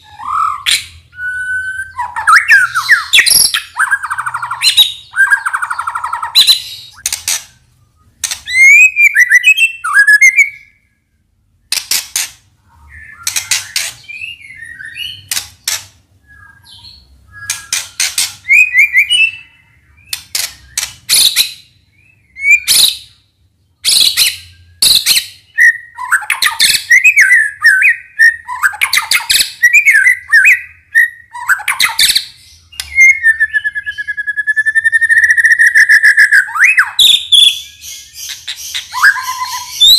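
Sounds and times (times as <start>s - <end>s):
songbird singing whistled song: 0.0s - 11.8s, 12.7s - 15.4s, 16.2s - 39.9s.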